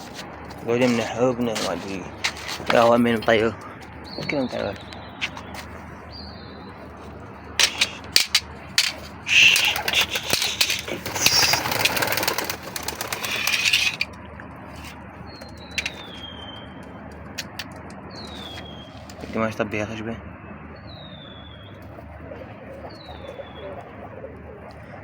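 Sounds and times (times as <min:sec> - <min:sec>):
pigeon high-pitched calls: 0:04.1 - 0:14.2, 0:14.8 - 0:16.9, 0:18.1 - 0:19.2, 0:21.0 - 0:25.0
pigeon wings flapping: 0:07.6 - 0:14.2.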